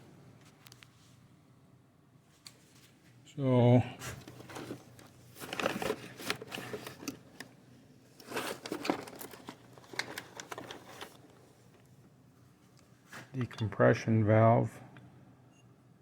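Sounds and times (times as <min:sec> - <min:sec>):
rustling and clicks of parts handled: 0:04.0 - 0:11.9.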